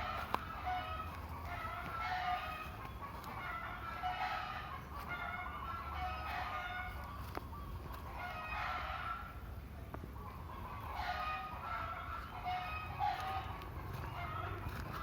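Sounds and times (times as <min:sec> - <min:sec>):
roosters crowing: 0:00.0 - 0:09.5, 0:10.4 - 0:15.0
chickens calling: 0:00.0 - 0:15.0.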